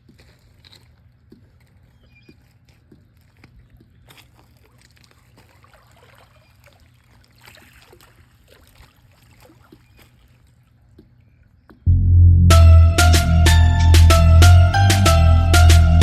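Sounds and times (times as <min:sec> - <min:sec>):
small ticks and splashes: 0:00.0 - 0:11.3
pool water trickling and lapping: 0:00.0 - 0:11.8
steady low hum: 0:11.9 - 0:16.0.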